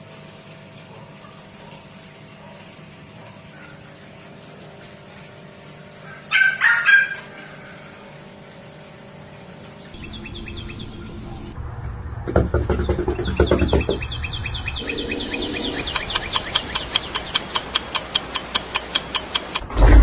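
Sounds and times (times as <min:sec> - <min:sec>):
small bird chirping: 0:13.1 - 0:18.1.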